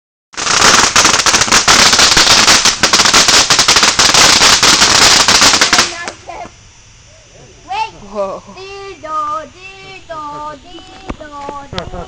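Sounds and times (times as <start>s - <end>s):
firecrackers cracking and popping: 0.4s - 6.6s.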